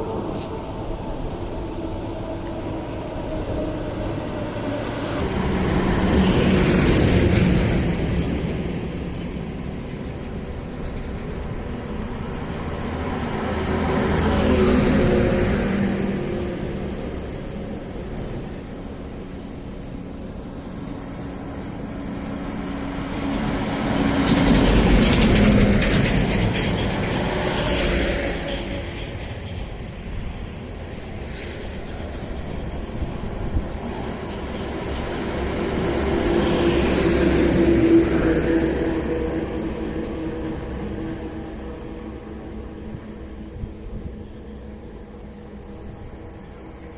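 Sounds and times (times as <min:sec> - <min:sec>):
heavy truck passing: 0:00.0 - 0:46.9
highway traffic: 0:00.0 - 0:46.9
vehicle passing close by: 0:11.4 - 0:18.6, 0:20.9 - 0:29.4.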